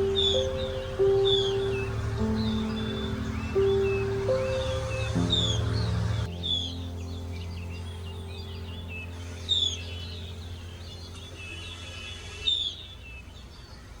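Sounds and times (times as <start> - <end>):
low hum: 0.0 - 13.6
birds chirping: 0.0 - 14.0.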